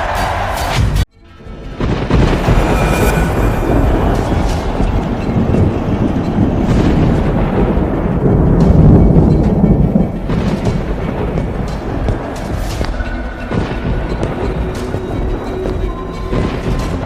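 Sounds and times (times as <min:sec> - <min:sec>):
dramatic music: 0:00.2 - 0:17.0
loud deep rumbling: 0:01.8 - 0:12.4.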